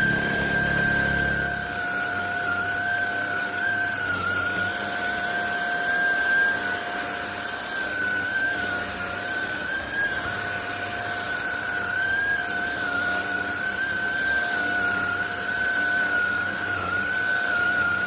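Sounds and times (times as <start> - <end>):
stick vacuum cleaner running: 0.0 - 18.0.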